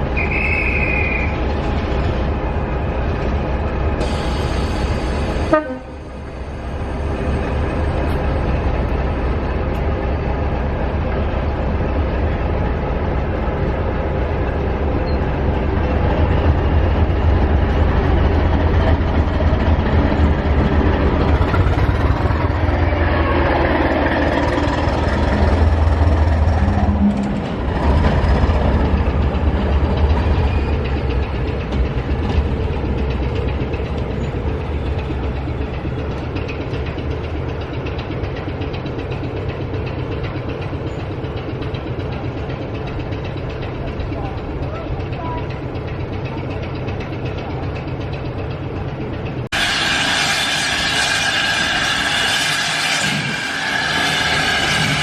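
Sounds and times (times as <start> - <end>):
train rumbling: 0.0 - 55.0
train horn dropping in pitch: 5.5 - 6.0.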